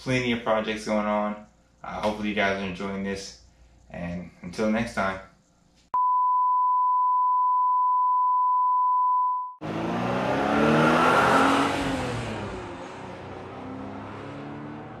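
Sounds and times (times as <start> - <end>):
car engine: 9.6 - 15.0.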